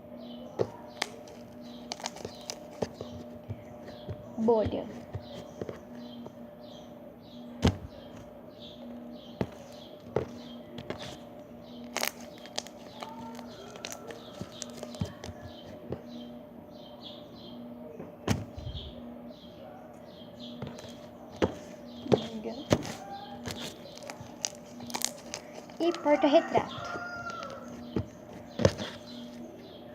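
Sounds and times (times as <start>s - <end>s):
steady low hum: 0.0s - 29.9s
slime being squished by hand: 11.9s - 15.4s, 22.2s - 25.7s.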